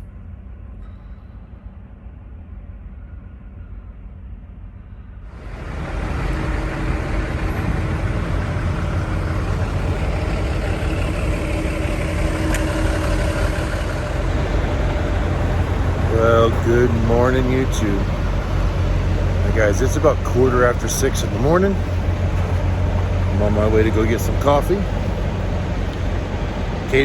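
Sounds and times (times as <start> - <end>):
vehicle engine idling: 5.2 - 27.0.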